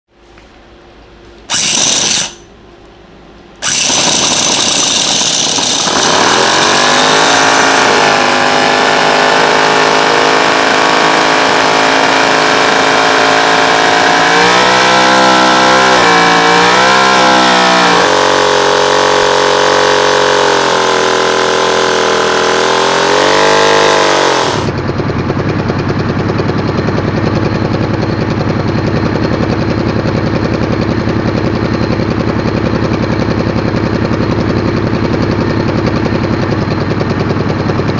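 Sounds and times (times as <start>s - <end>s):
short loud burst: 1.5s - 2.5s, 3.6s - 8.5s
model engine running and revving: 3.6s - 24.8s.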